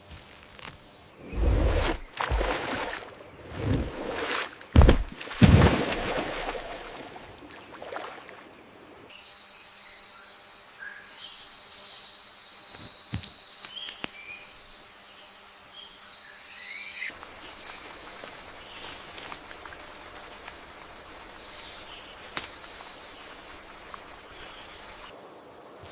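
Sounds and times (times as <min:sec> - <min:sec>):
insects trilling: 0:08.6 - 0:25.1.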